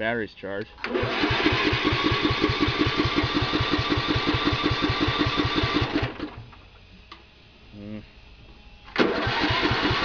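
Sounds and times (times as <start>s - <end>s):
electric starter cranking engine: 0.8s - 6.4s, 8.9s - 10.0s.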